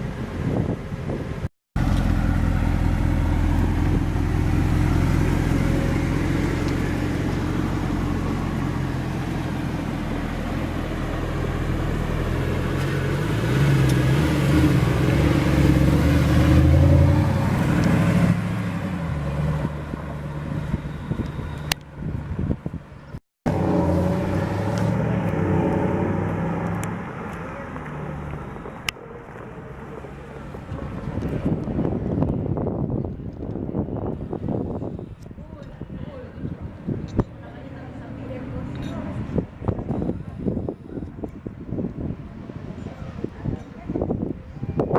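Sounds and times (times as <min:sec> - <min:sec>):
car engine running: 0:01.8 - 0:11.0.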